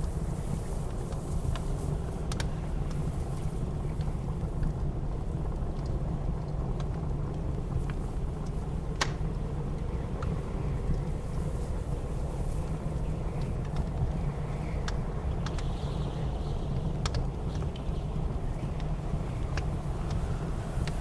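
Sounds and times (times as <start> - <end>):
wood fire crackling: 0.0 - 15.7, 16.6 - 21.0
blizzard wind rushing: 7.1 - 21.0.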